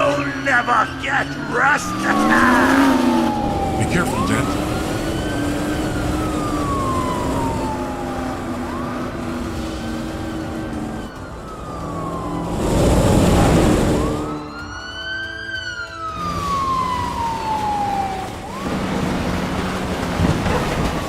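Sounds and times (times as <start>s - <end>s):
police siren wailing: 0.0s - 21.0s.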